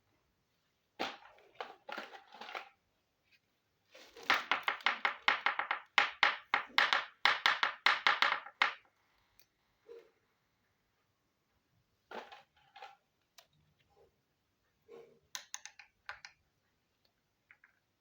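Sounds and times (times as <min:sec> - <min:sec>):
plastic toy pieces clicking: 0:15.4 - 0:16.4.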